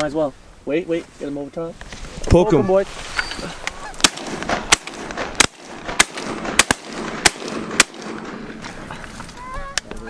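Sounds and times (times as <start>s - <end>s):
shotgun shots: 4.0s - 8.7s.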